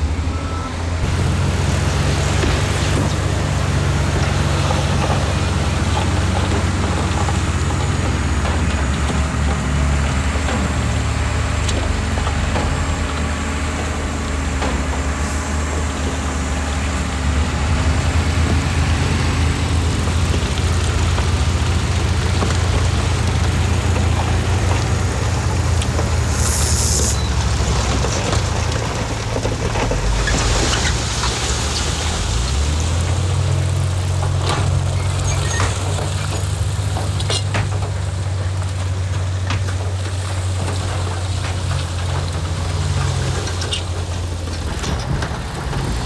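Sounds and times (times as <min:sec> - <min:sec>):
heavy machinery diesel engine: 0:00.0 - 0:46.0
short hiss: 0:26.3 - 0:27.2.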